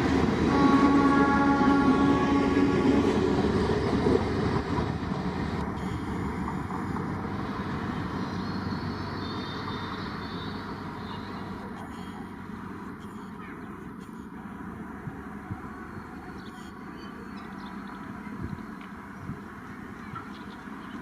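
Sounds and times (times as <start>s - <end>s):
train rumbling past: 0.0s - 21.0s
train horn: 0.4s - 3.6s.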